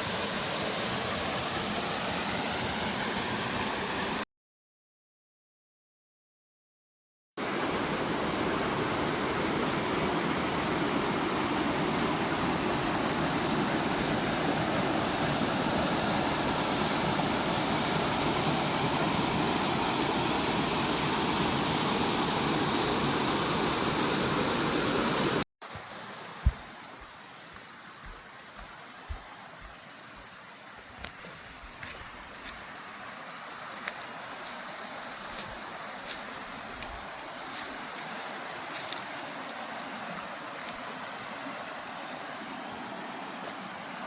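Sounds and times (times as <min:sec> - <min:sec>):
quieter water sound: 0:25.0 - 0:44.0.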